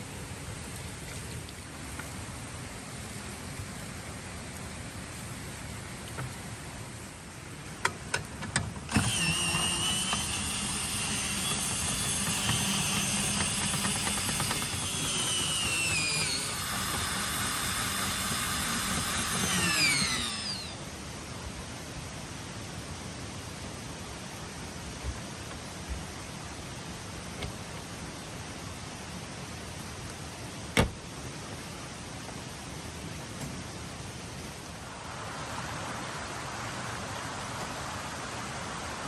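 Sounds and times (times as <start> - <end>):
small electric motor whining: 8.9 - 20.8.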